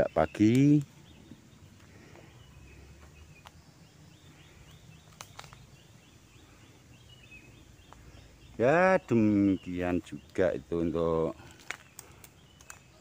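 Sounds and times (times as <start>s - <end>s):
bird chirping: 0.0s - 13.0s
sharp clicks: 0.4s - 1.0s, 5.0s - 5.7s, 11.5s - 12.9s.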